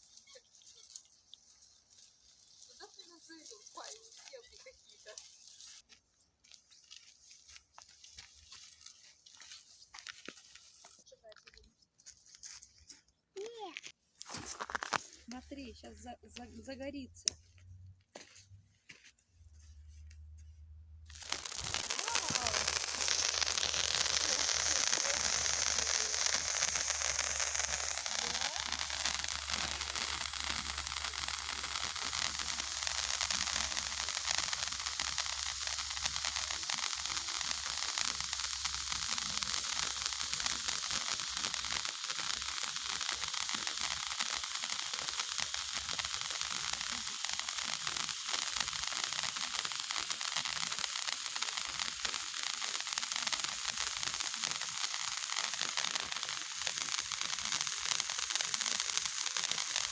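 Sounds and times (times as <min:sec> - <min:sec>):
pyrotechnic fountain hissing: 0:21.1 - 0:59.9.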